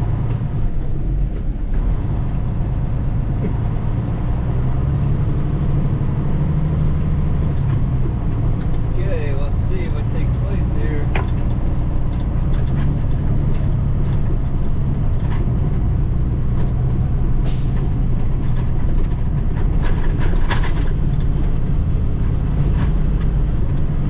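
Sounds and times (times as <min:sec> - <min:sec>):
diesel truck engine running: 0:00.0 - 0:24.0
rattles and clunks: 0:06.9 - 0:24.0.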